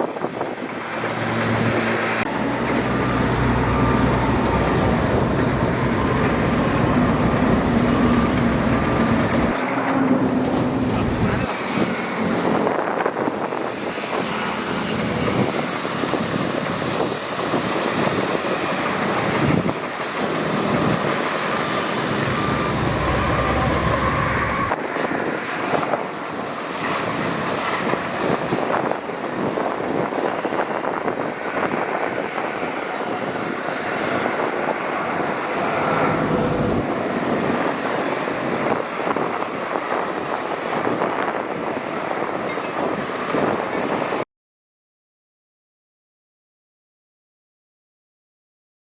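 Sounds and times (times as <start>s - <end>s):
bulldozer diesel engine under load: 0.3s - 12.9s, 13.5s - 24.8s, 34.4s - 38.6s.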